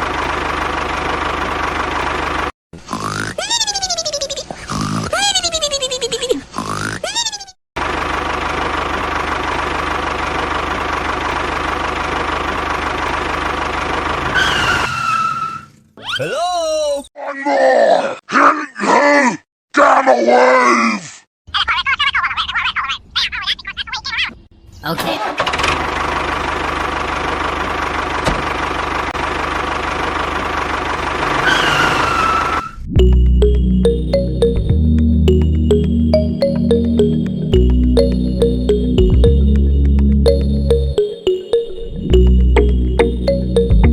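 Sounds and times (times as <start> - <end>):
engine idling with knock: 0.0 - 2.5, 7.8 - 14.3, 26.8 - 31.4.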